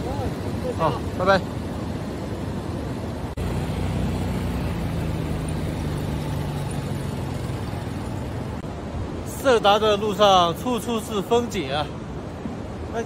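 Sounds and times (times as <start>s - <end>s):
small motorcycle engine: 3.4s - 8.6s.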